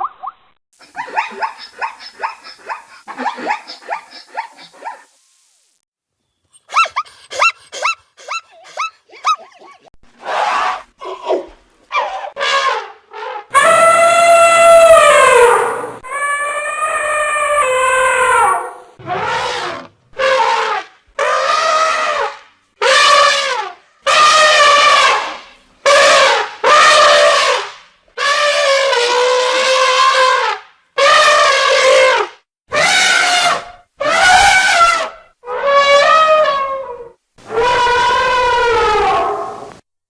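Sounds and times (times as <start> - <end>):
brassy horn-like animal calls: 12.0 - 39.7.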